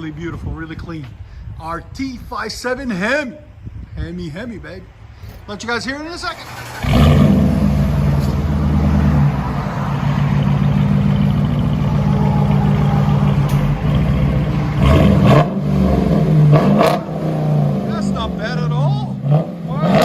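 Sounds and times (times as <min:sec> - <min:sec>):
car engine idling and revving: 0:06.4 - 0:20.0.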